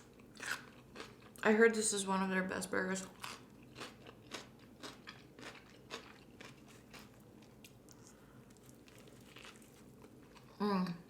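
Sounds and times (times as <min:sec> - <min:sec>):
chewing with moist mouth clicks: 0:03.2 - 0:10.6.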